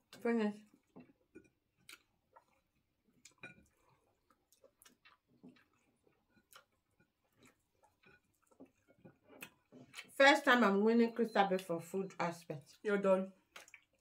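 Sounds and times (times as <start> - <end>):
people chewing food: 0.0 - 10.2, 11.3 - 14.0.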